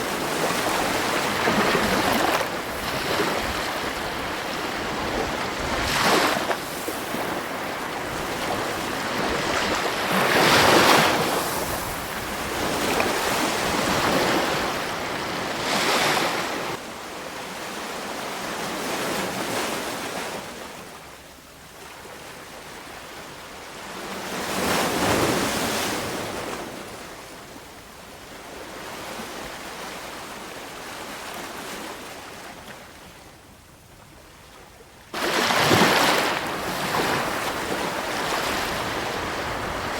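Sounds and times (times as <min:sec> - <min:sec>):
sea waves breaking on shore: 0:00.0 - 0:20.8, 0:35.1 - 0:39.9.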